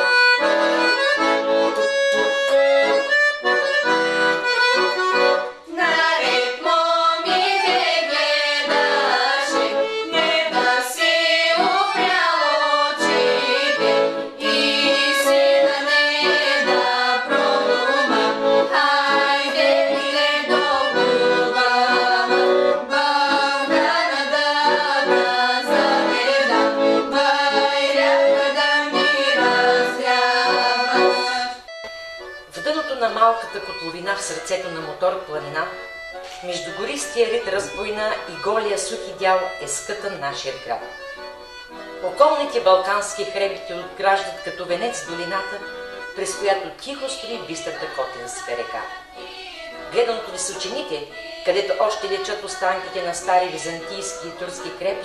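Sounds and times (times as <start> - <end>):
accordion folk tune: 0.0 - 55.0.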